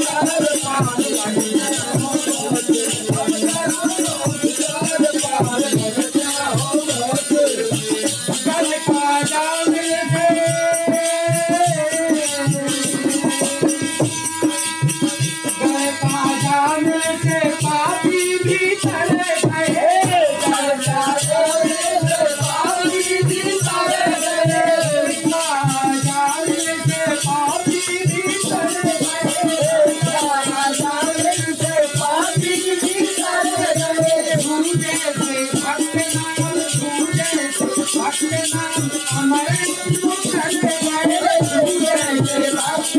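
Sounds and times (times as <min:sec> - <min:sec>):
fast drum beat: 0:00.0 - 0:42.9
shaken rattle percussion: 0:00.0 - 0:42.9.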